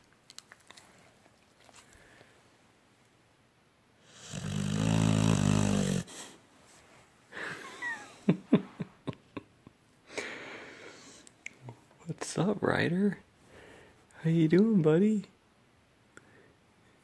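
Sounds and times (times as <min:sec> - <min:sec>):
dog snoring: 0:04.0 - 0:06.3.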